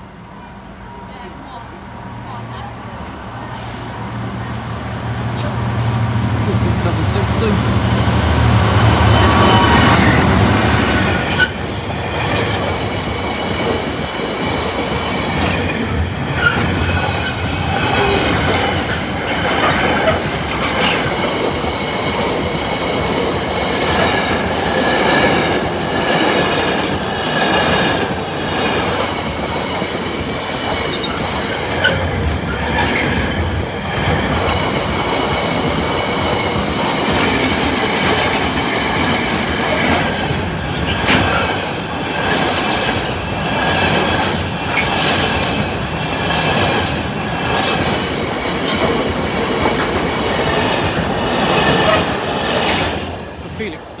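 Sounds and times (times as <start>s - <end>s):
diesel locomotive engine passing: 0.0s - 54.0s
container wagons rumbling and clattering: 8.8s - 54.0s
high wheel squeal: 9.1s - 10.3s, 30.9s - 33.3s.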